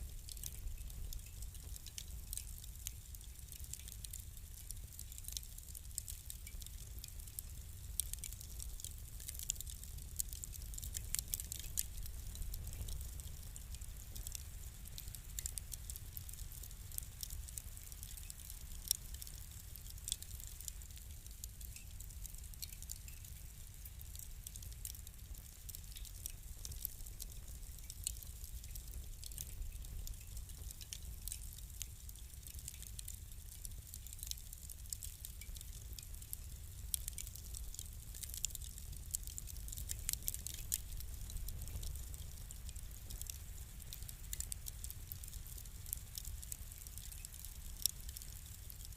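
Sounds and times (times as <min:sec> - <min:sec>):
fire crackling and popping: 0:00.0 - 0:48.9.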